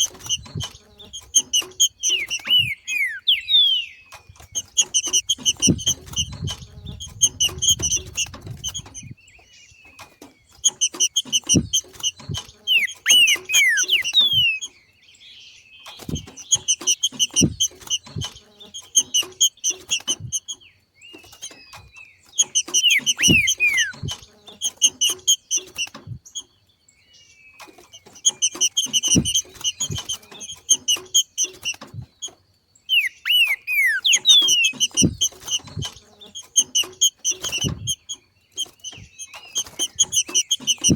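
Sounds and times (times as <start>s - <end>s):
bird rapid scratchy call: 0.0s - 9.2s, 10.5s - 14.8s, 16.0s - 20.6s, 21.2s - 26.2s, 27.8s - 31.9s, 32.9s - 40.9s
falling whistles: 1.9s - 4.1s, 12.7s - 14.6s, 22.6s - 24.1s, 32.9s - 35.0s.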